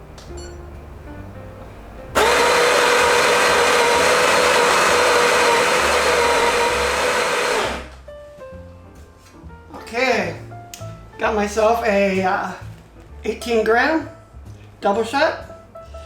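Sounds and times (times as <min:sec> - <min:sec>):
electric coffee grinder whirring: 0:02.2 - 0:08.0.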